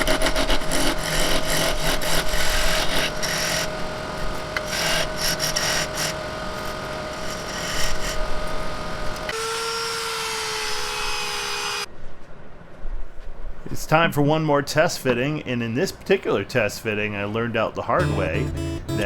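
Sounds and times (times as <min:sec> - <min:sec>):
power tool cutting wood: 0:00.0 - 0:11.9
smooth power tool whine: 0:00.0 - 0:11.9.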